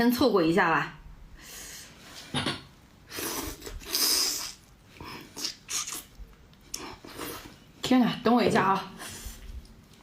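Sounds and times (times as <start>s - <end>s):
slurping: 3.1s - 7.6s.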